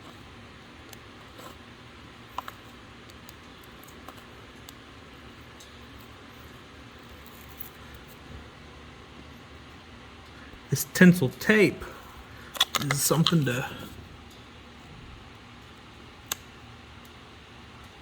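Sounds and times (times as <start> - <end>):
faint steady hiss: 0.0 - 18.0
handling clicks: 12.5 - 13.7.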